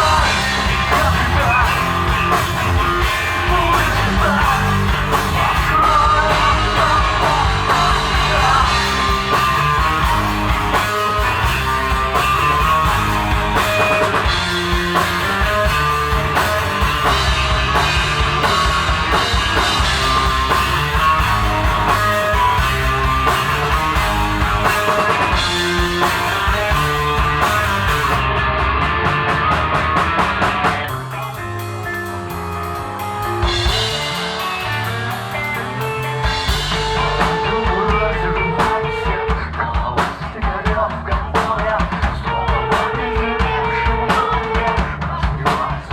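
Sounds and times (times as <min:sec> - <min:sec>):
bass guitar: 0:00.0 - 0:45.9
drum kit: 0:00.0 - 0:45.9
electric guitar: 0:00.0 - 0:45.9
person singing: 0:03.4 - 0:09.5, 0:36.4 - 0:45.9.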